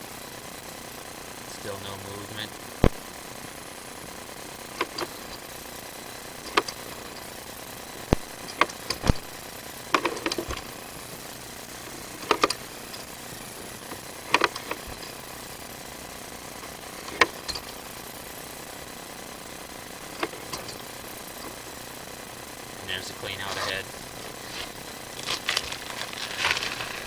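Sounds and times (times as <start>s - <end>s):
inspection cable clicking in pipe: 4.8s - 5.4s, 6.3s - 7.3s, 9.9s - 10.7s, 12.2s - 13.0s.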